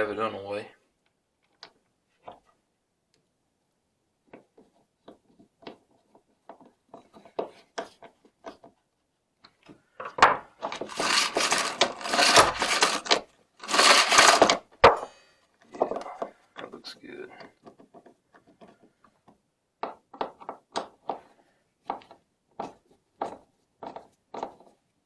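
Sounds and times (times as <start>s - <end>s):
metal parts clicking and tapping: 9.4s - 15.0s
small hardware rattling: 10.6s - 14.6s.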